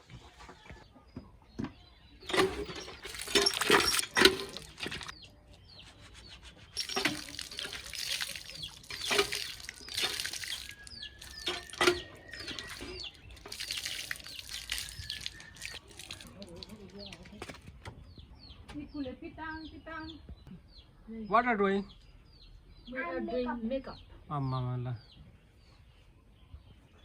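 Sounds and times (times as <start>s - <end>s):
water splashing and pouring: 2.3s - 5.1s, 6.8s - 16.8s.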